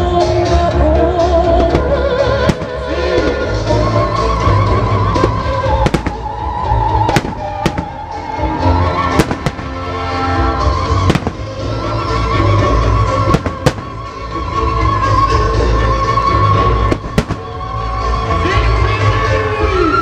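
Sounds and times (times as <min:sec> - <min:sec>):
music with held notes: 0:00.0 - 0:20.0
fireworks bangs: 0:01.6 - 0:03.6, 0:05.0 - 0:15.3, 0:16.8 - 0:18.1.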